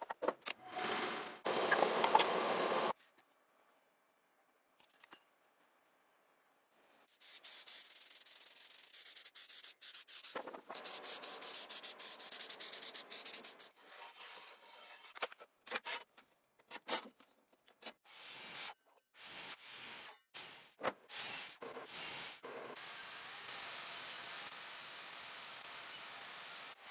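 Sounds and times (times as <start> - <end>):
sandpaper rubbing a surface: 7.1 - 13.7.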